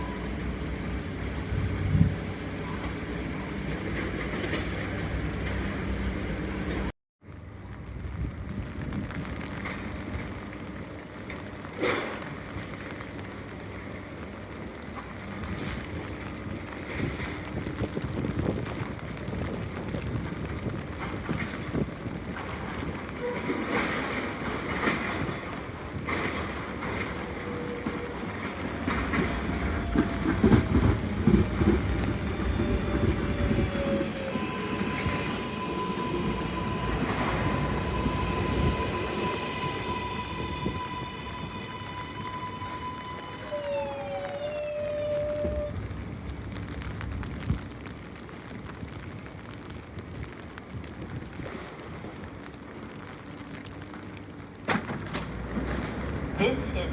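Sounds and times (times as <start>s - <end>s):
subway train rumbling: 0.0s - 56.9s
wind buffeting microphone: 7.5s - 11.1s, 15.3s - 42.8s
wheel squeal: 26.1s - 46.0s.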